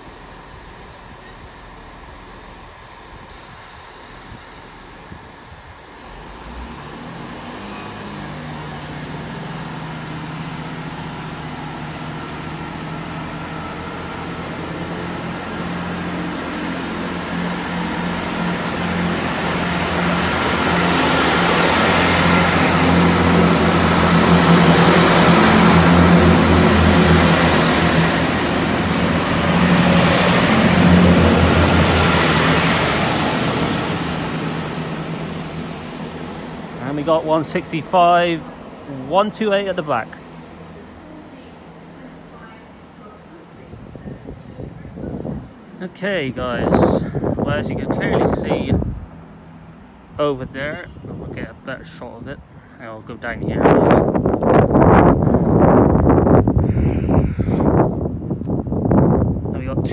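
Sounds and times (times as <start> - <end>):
diesel train engines droning: 0.0 - 59.9
hiss: 3.2 - 5.3.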